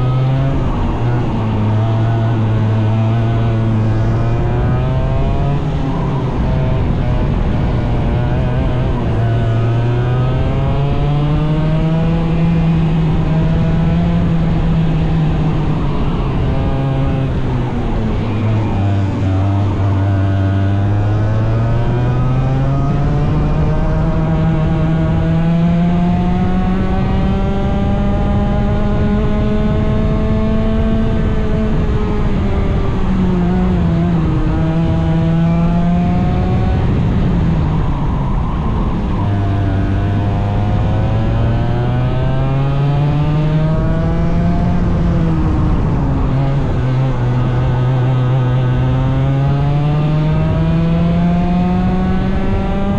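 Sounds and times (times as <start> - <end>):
small racing engine running hard: 0.0 - 52.9.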